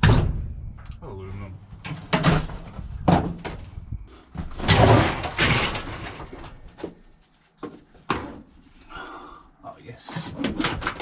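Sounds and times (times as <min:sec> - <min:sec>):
metal knocks and bangs: 0:00.0 - 0:01.0, 0:01.8 - 0:03.8, 0:04.4 - 0:07.0
metal scraping clatter: 0:04.5 - 0:06.7.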